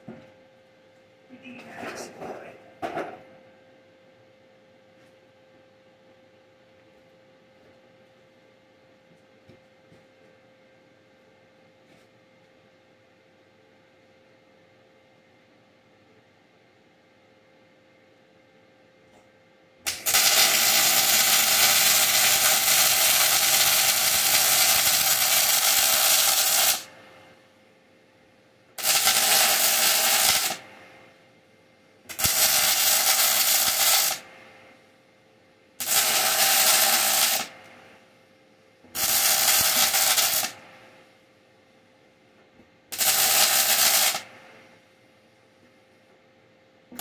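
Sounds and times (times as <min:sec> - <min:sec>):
welding arc crackling and hissing: 0:19.9 - 0:26.9, 0:28.8 - 0:30.7, 0:32.1 - 0:34.3, 0:35.8 - 0:37.8, 0:38.9 - 0:40.6, 0:42.9 - 0:44.4.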